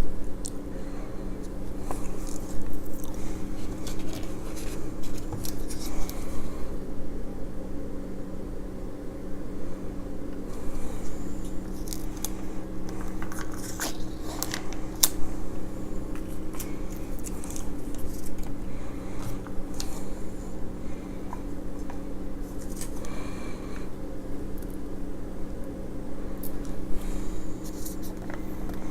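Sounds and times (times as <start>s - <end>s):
steady low hum: 0.0s - 28.9s
crisp chewing crackles: 1.8s - 6.2s, 10.5s - 15.2s, 15.9s - 18.6s.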